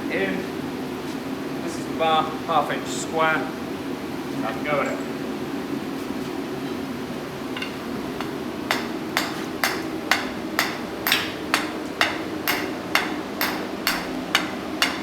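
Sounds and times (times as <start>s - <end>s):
hammer striking steel bar: 7.6s - 15.0s.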